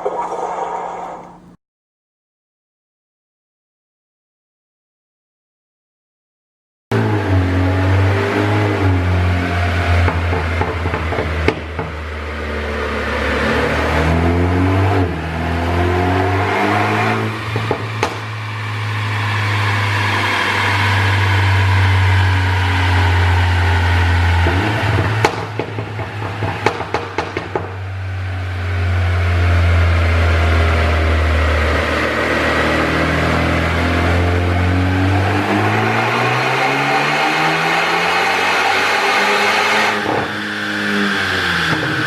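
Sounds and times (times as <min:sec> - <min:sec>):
car engine revving: 0:07.0 - 0:42.0
exhaust pops and crackles: 0:17.5 - 0:18.4, 0:24.4 - 0:27.9.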